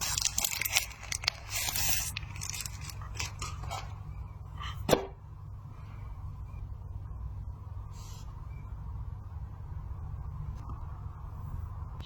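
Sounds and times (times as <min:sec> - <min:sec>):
packaging rustling and crinkling: 0:00.0 - 0:03.9
steady low hum: 0:00.0 - 0:12.0.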